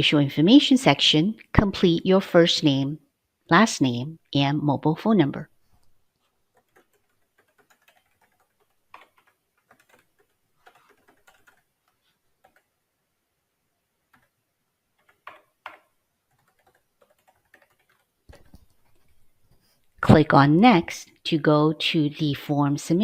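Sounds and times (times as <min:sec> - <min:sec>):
computer keyboard typing: 0:06.5 - 0:12.8, 0:14.1 - 0:14.4, 0:15.0 - 0:19.2.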